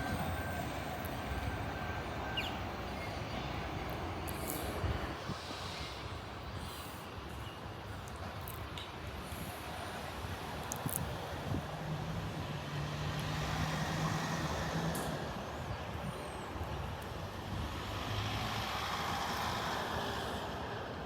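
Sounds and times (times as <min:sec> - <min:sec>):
train wheels rumbling: 0:00.0 - 0:06.7.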